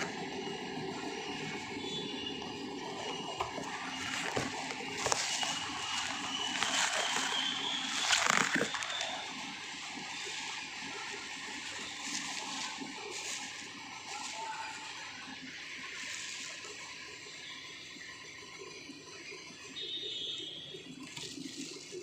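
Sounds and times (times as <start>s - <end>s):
water sloshing and splashing: 0.0s - 17.4s.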